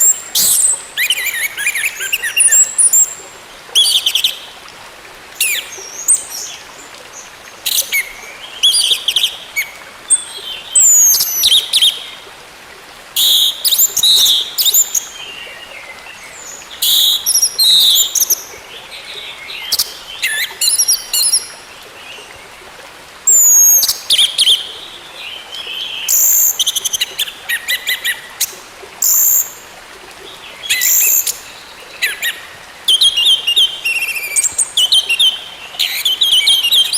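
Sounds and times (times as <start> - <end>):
thrush singing whistles and trills: 0.0 - 3.2, 13.2 - 15.2, 16.4 - 18.4, 23.3 - 24.6, 26.1 - 28.3, 29.0 - 29.6, 30.7 - 36.9.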